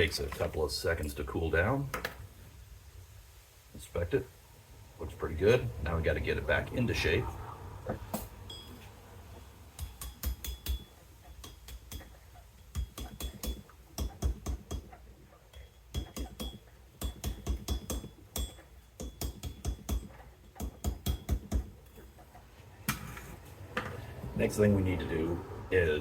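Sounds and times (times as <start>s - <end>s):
faint metallic ring: 8.4s - 9.2s
mallet tapping copper wire: 9.7s - 22.0s.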